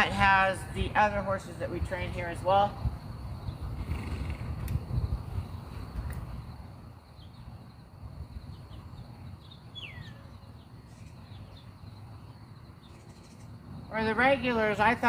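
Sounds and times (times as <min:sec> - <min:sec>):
faint bird chirps: 0:05.7 - 0:13.6
falling whistled bird call: 0:09.8 - 0:10.3.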